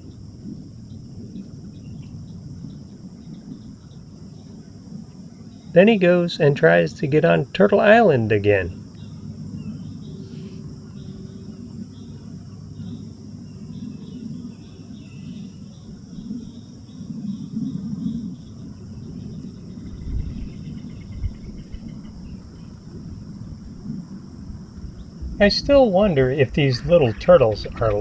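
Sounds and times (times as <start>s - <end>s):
insects chirring: 0.0s - 28.0s
low uneven rumble: 17.8s - 28.0s.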